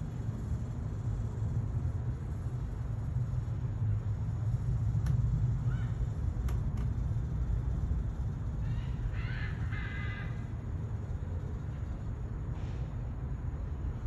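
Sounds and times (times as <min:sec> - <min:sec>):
steady low rumble: 0:00.0 - 0:14.0
harsh animal calls: 0:08.6 - 0:10.5.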